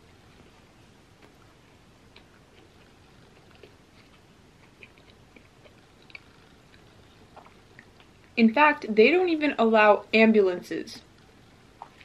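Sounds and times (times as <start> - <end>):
chewing with mouth closed: 2.1 - 8.4
soft mouth clicks and smacks: 2.1 - 8.4, 11.8 - 12.0.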